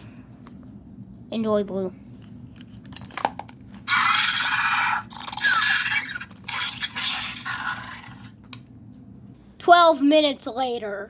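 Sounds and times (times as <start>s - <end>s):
electronic toy creature sounds: 3.8s - 8.3s.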